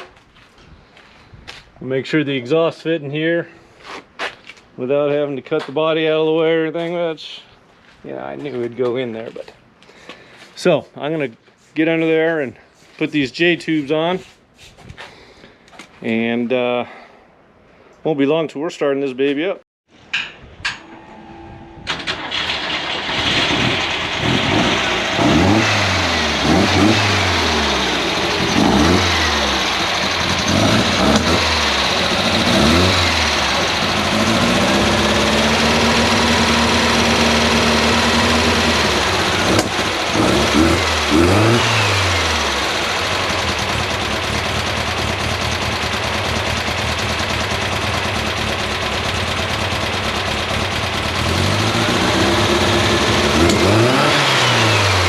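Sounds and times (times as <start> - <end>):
car engine revving and idling: 22.2 - 55.0.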